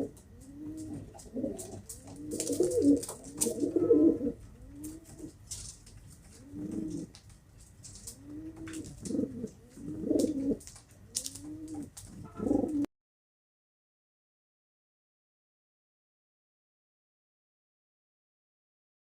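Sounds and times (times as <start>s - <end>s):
pigeons cooing: 0.0s - 12.9s
faint clicks and rustles: 4.8s - 12.4s.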